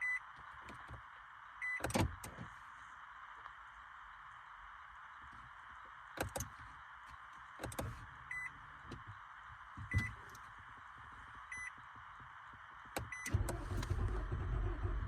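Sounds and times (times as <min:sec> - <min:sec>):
car warning chime beeping: 0:00.0 - 0:00.2, 0:01.6 - 0:02.1, 0:07.7 - 0:08.6, 0:09.8 - 0:10.2, 0:11.5 - 0:11.7, 0:13.0 - 0:13.5.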